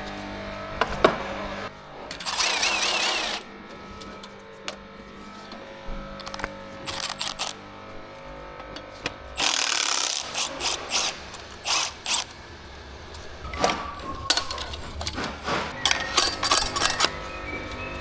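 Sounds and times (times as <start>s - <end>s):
ratchet wrench clicking: 2.1s - 3.4s, 6.2s - 7.6s, 8.7s - 17.2s.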